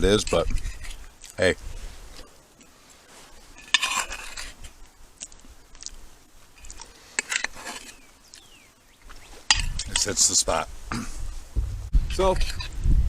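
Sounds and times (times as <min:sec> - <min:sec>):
fork scraping plate: 0:00.4 - 0:01.0, 0:03.5 - 0:04.8, 0:06.6 - 0:08.0
chewing: 0:02.1 - 0:09.9.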